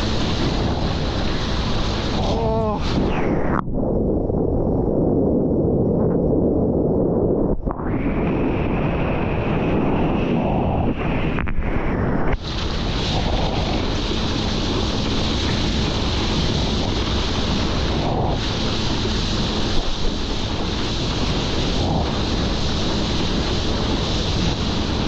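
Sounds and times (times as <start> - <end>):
rushing water: 0.0 - 3.2, 12.4 - 25.0
wind buffeting microphone: 0.0 - 25.0.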